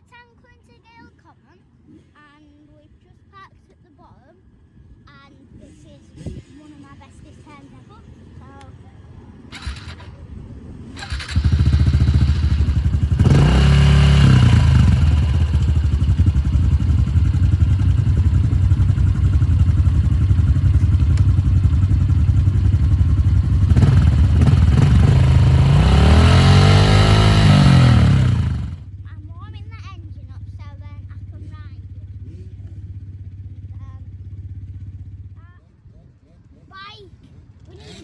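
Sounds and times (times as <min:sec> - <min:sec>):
motorcycle engine revving: 0:09.5 - 0:10.3, 0:11.0 - 0:29.0.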